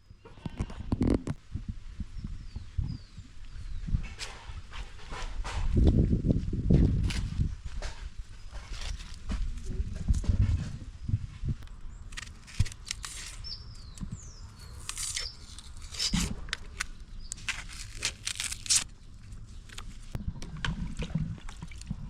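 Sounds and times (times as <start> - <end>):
bird chirps: 13.2 - 16.2.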